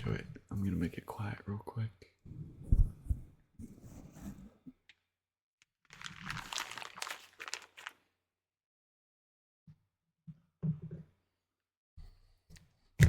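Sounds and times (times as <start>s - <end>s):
rustling crinkly handling noise: 5.9s - 8.1s.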